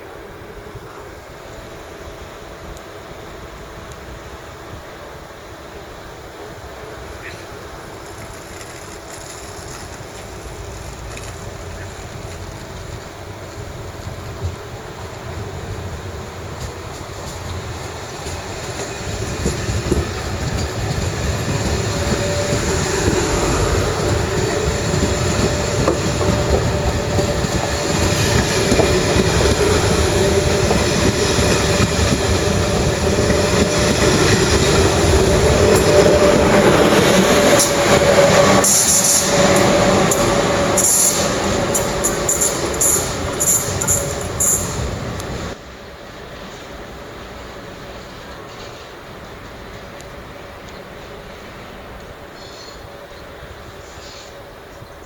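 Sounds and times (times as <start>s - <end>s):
train wheels rumbling: 0.0s - 54.5s
high-pitched squeals and clicks: 18.2s - 45.6s.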